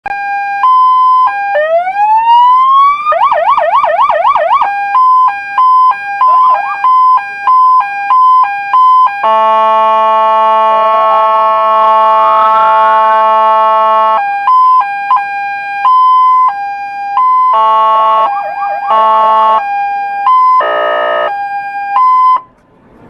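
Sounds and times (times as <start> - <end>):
police siren cycling tones: 0.1 - 22.5
blaring horn tone: 4.7 - 14.4, 15.5 - 22.0.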